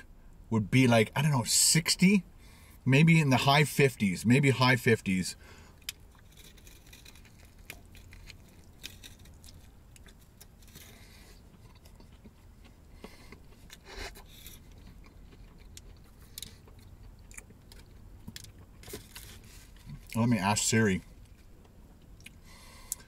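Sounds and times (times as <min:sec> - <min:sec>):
low steady hum: 0:00.0 - 0:23.0
person chewing: 0:05.7 - 0:20.3, 0:21.1 - 0:23.0.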